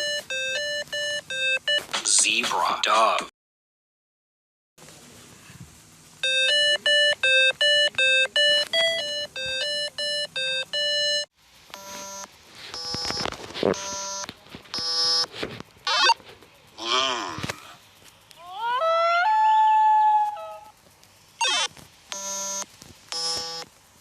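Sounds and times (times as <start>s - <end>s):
short beeping notes: 6.2s - 13.2s
buzzy tones: 6.2s - 17.8s, 21.3s - 23.7s.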